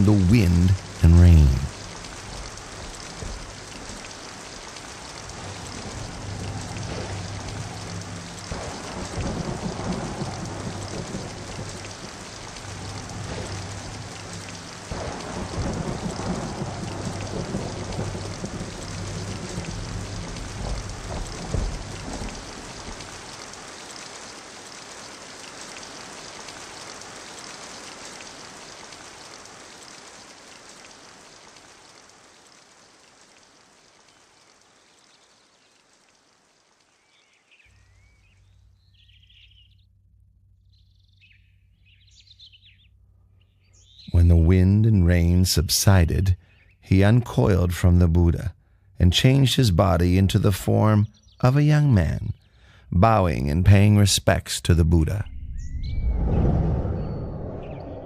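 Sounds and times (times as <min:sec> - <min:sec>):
heavy rain falling: 0:00.0 - 0:37.7
thunder rolling: 0:04.9 - 0:23.6, 0:55.1 - 0:58.0.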